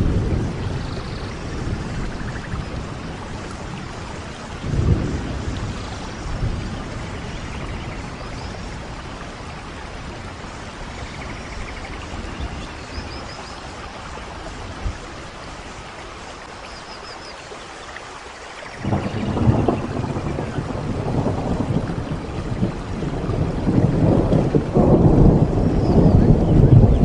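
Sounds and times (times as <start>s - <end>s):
thunder rumbling: 0.0s - 16.4s, 18.8s - 27.0s
steady rain falling: 0.0s - 27.0s.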